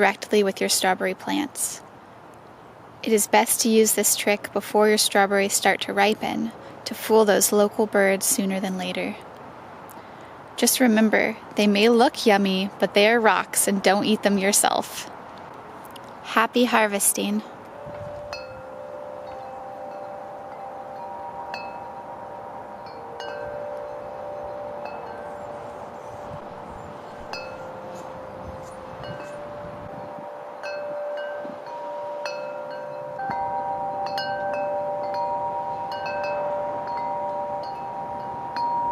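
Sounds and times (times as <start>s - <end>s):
wind chimes ringing: 16.6s - 38.9s.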